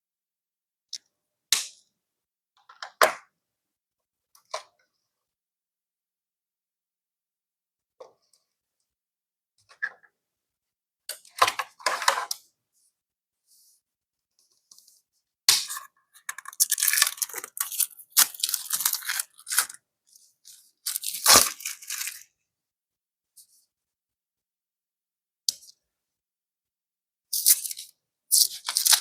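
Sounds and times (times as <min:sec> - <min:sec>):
packaging tearing and crackling: 0:16.3 - 0:19.8, 0:20.9 - 0:22.2, 0:27.4 - 0:29.0.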